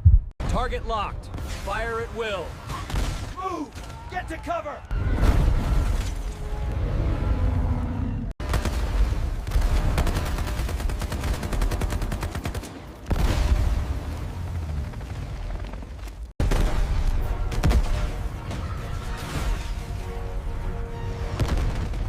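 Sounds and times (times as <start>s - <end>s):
machine-gun fire: 8.4s - 13.6s.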